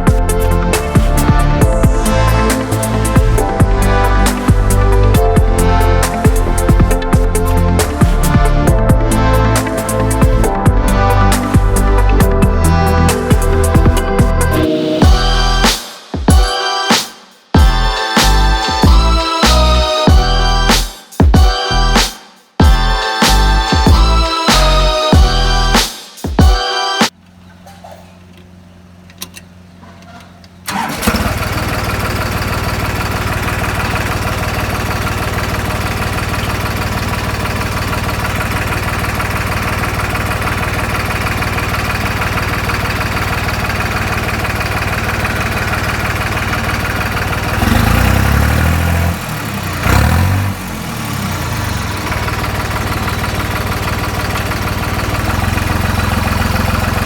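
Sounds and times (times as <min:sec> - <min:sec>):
diesel tractor engine starting: 0:00.0 - 0:15.8, 0:17.6 - 0:20.9, 0:22.6 - 0:25.8, 0:28.2 - 0:57.0
tractor engine idling: 0:00.0 - 0:15.8, 0:28.2 - 0:57.0
tractor engine revving: 0:00.0 - 0:15.8, 0:17.6 - 0:20.9, 0:22.6 - 0:25.8, 0:30.6 - 0:57.0.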